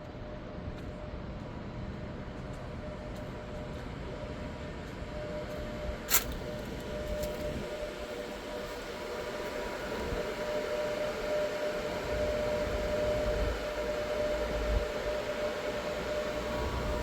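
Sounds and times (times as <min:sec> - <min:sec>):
electrical whine: 0:02.3 - 0:17.0
cooling fan rushing: 0:05.9 - 0:17.0.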